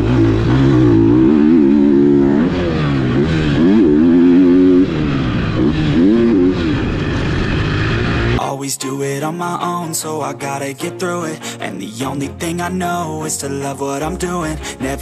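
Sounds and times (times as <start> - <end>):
motocross bike engine revving: 0.0 - 8.4.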